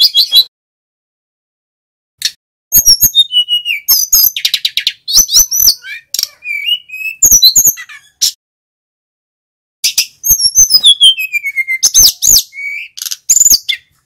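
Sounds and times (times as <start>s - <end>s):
flycatcher singing: 2.7s - 8.2s, 9.8s - 14.0s.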